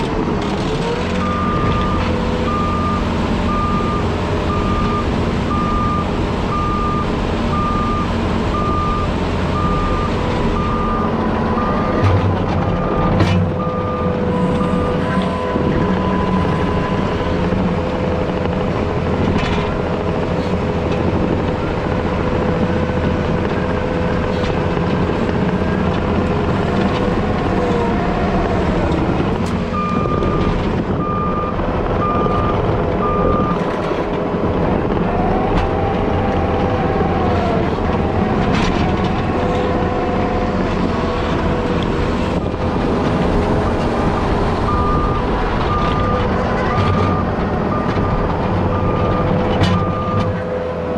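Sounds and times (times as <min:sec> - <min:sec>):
heavy diesel engine under load: 0:00.0 - 0:50.9
reversing alarm beeping: 0:01.2 - 0:17.5, 0:29.7 - 0:33.6, 0:44.0 - 0:50.4.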